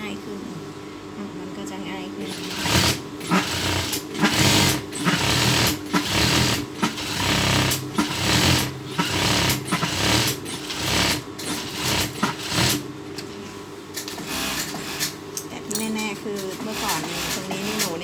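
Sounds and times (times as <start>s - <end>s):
sewing machine stitching: 2.2s - 12.8s, 14.0s - 15.2s, 16.3s - 18.0s.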